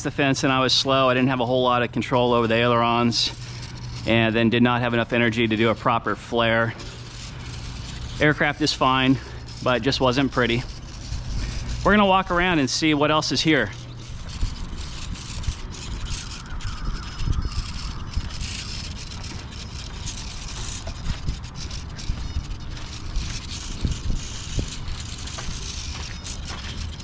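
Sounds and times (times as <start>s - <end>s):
wind rumbling on microphone: 7.0s - 27.0s.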